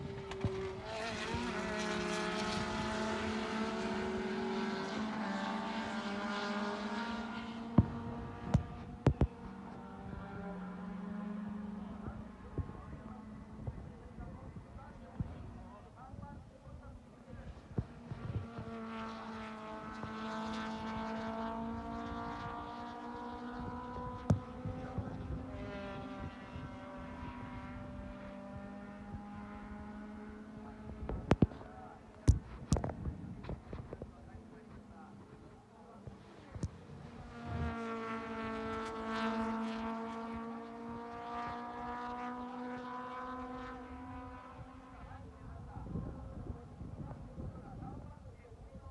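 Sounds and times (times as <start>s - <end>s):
car engine passing by: 0.2s - 12.4s, 36.8s - 45.0s.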